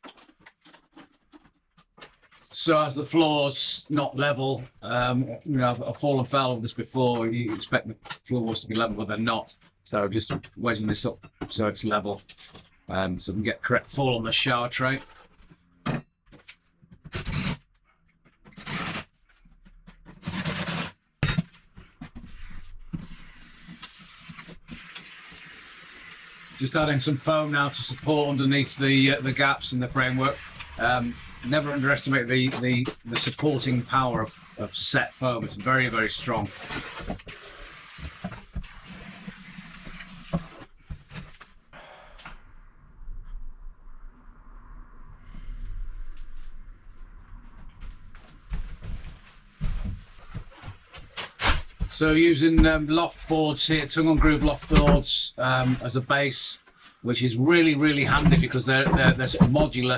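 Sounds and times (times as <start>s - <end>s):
expanding foam can hissing: 23.2s - 26.6s
wooden wedges scraping: 28.4s - 41.4s, 57.6s - 59.9s.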